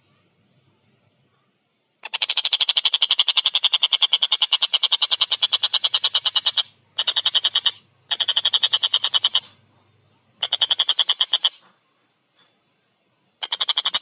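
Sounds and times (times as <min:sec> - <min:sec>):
kingfisher chattering call: 0:02.0 - 0:09.6, 0:10.4 - 0:11.6, 0:13.4 - 0:14.0.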